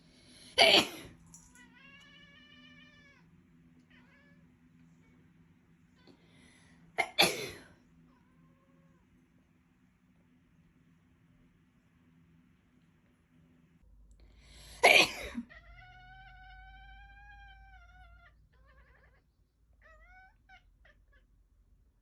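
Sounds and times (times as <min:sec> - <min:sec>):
cat meowing: 0:01.6 - 0:05.2, 0:15.4 - 0:21.3.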